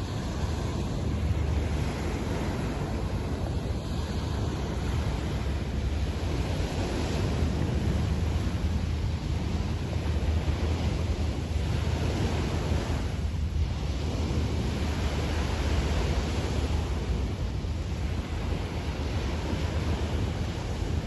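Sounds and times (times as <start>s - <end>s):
waves washing onto beach: 0.0s - 21.0s
wind rumble on microphone: 0.0s - 21.0s.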